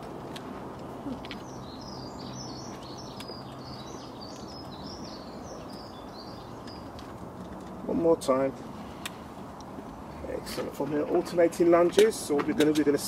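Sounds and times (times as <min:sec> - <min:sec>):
low outdoor hum: 0:00.0 - 0:13.0
songbird chirping: 0:01.0 - 0:08.2.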